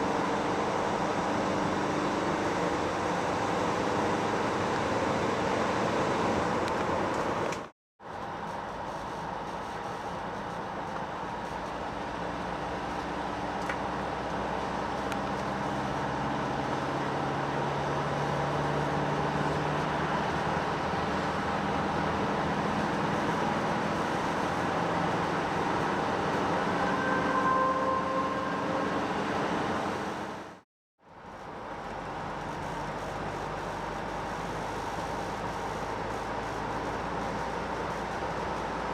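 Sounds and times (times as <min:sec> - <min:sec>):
road noise: 0:00.0 - 0:38.9.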